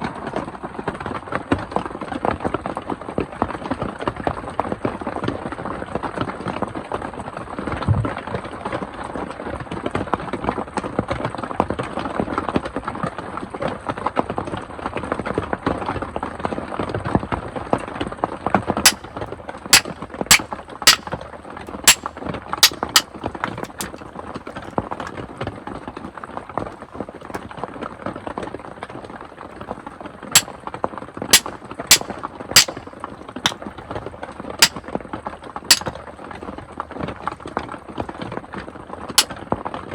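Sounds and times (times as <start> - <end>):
sharp loud pops: 18.9 - 19.1, 19.8 - 21.1, 21.9 - 24.0, 31.4 - 32.8.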